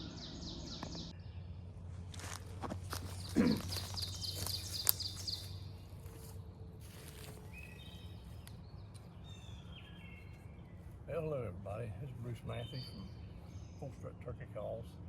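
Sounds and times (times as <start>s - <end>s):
songbirds singing: 0.0s - 15.0s
low bird call: 3.0s - 6.4s.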